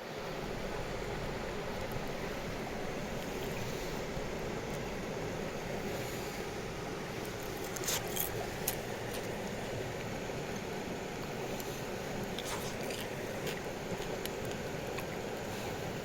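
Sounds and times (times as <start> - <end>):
campfire rushing hiss: 5.4 - 14.0.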